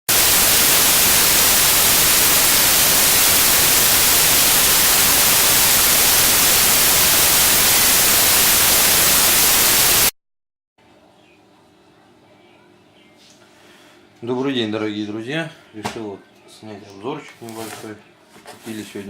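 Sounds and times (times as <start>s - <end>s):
static hiss: 0.0s - 10.1s.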